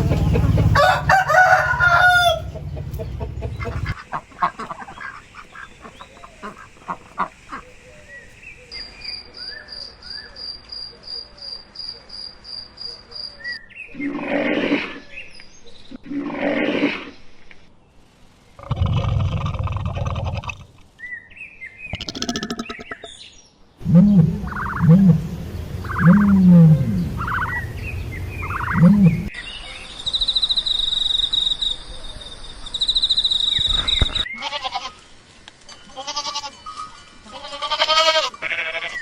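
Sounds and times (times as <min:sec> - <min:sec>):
chickens clucking and calling: 0:00.0 - 0:07.8, 0:23.8 - 0:29.3
high pulsing chirp: 0:23.8 - 0:34.0.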